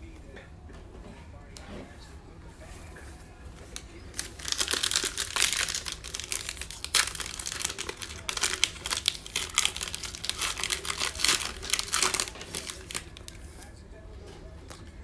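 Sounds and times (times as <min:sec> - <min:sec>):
plastic wrapper crinkling: 0:03.6 - 0:13.6.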